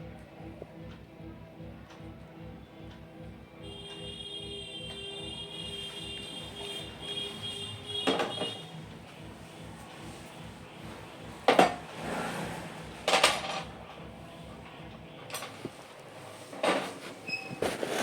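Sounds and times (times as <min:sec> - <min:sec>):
hard objects clattering: 0:11.4 - 0:14.0.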